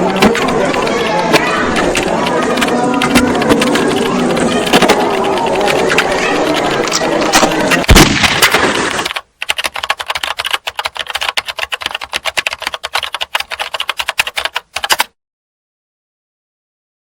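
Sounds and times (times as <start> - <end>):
keyboard typing clicks: 0.0 - 15.2.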